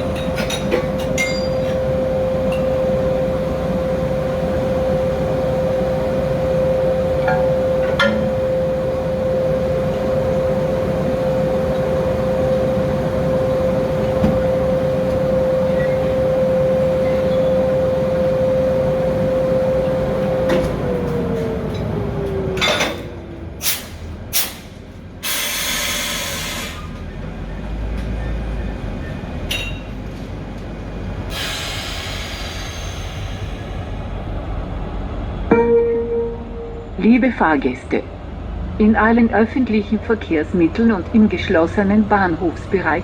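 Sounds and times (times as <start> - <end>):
locomotive hum: 0.0 - 43.0
air brakes hissing: 23.6 - 27.0, 31.3 - 34.1.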